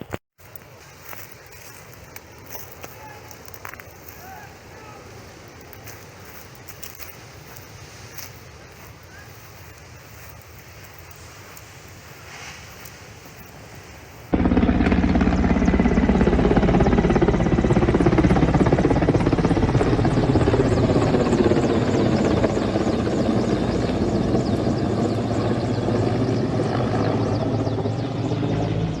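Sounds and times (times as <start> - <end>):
helicopter rotor and engine: 13.4 - 29.0.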